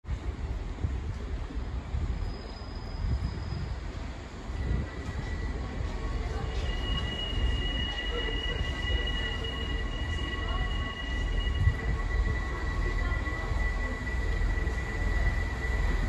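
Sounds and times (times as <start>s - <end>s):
train rumble: 0.0s - 16.0s
second higher squeal: 2.2s - 3.8s, 4.5s - 16.0s
high-pitched squeal: 4.6s - 16.0s.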